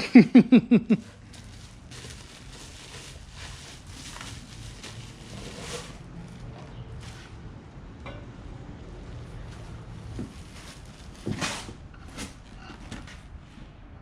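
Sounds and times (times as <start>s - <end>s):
burst of laughter: 0.0s - 1.1s
rustling and handling noises: 0.9s - 7.5s, 9.3s - 13.8s.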